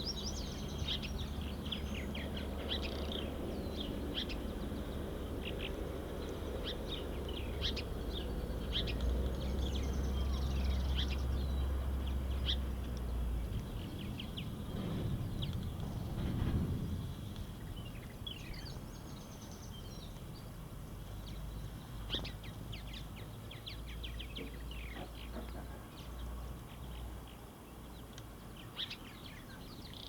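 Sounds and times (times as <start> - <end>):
small songbirds chirping: 0.0 - 30.0
steady low rumble: 0.1 - 20.0.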